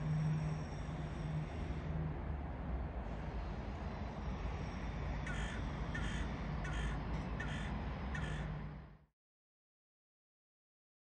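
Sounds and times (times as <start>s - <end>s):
bird calling: 5.3s - 8.5s.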